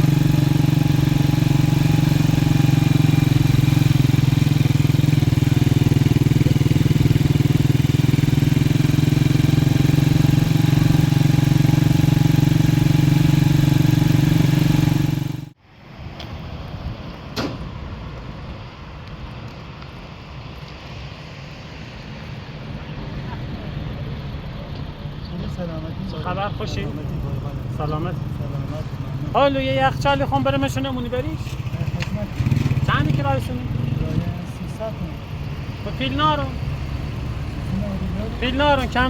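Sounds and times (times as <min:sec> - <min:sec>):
motorcycle engine running: 0:00.0 - 0:15.6, 0:23.1 - 0:39.0
sharp knock: 0:17.4 - 0:17.7.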